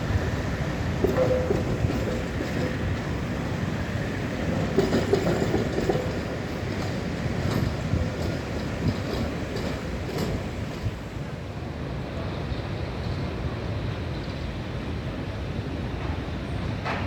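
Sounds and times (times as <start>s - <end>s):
tram wheel clicks: 0.0s - 11.1s
tram rumbling along track: 0.0s - 17.0s.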